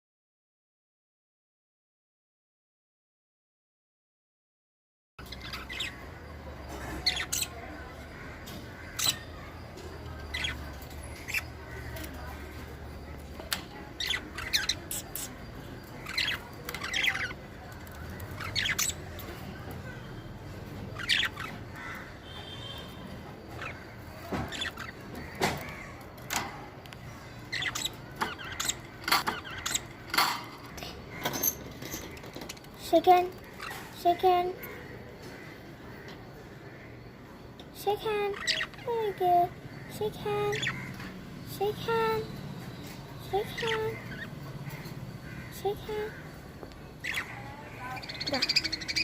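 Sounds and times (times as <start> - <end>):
pet bird squawks and chirps: 5.2 - 19.3, 20.8 - 26.4, 27.1 - 31.6, 37.9 - 46.4, 47.0 - 49.0.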